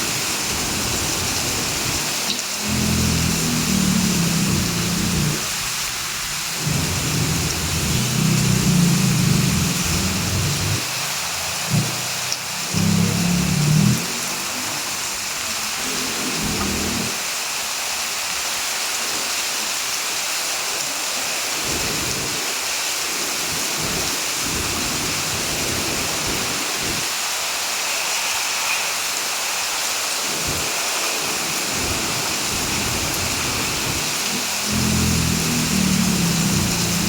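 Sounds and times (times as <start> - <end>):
heavy rain: 0.0 - 37.0
low rumbles: 2.6 - 5.6, 6.6 - 10.9.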